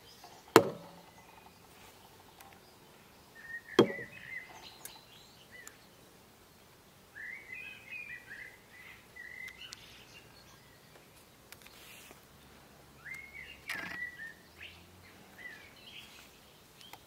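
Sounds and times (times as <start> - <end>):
small bird chirping: 0.0 - 12.2, 13.0 - 17.0
sharp knock: 0.6 - 0.9, 3.8 - 4.1.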